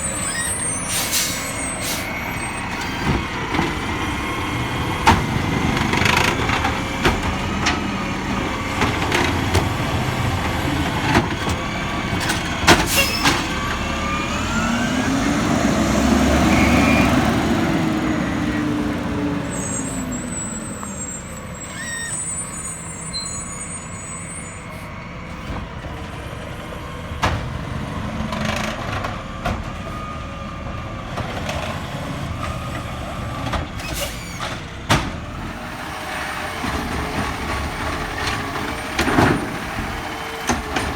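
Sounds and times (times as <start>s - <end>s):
garbage truck engine revving: 0.0s - 40.9s.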